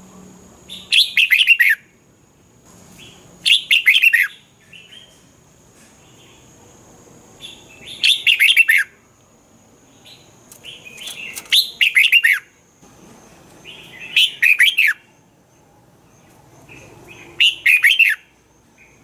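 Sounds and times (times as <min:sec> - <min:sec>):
bird whistling song: 0:00.7 - 0:01.9, 0:03.0 - 0:05.2, 0:07.4 - 0:09.0, 0:10.0 - 0:12.6, 0:13.6 - 0:15.6, 0:16.2 - 0:19.0.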